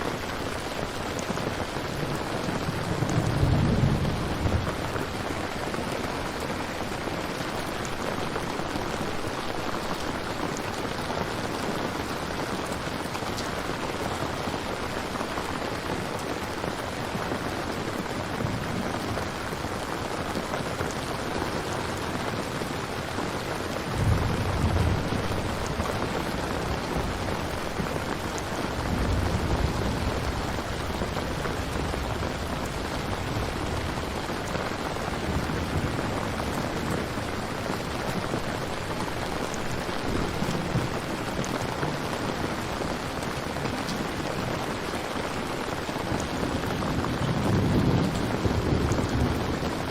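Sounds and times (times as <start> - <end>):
steady rain falling: 0.0 - 49.9
low rumble of thunder: 1.8 - 9.4, 23.8 - 42.0, 46.1 - 49.9.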